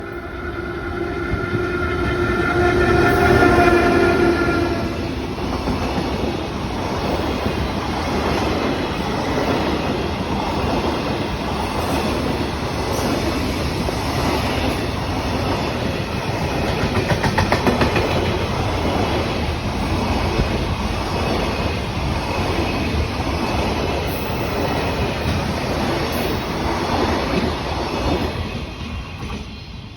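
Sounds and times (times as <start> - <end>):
wheels clacking over rail joints: 16.5 - 19.2.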